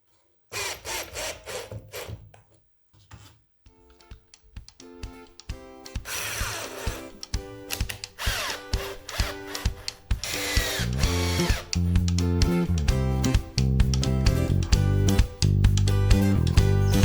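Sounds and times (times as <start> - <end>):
music with steady beat: 3.7 - 17.0
electric power tool running: 6.1 - 7.1, 8.2 - 11.7.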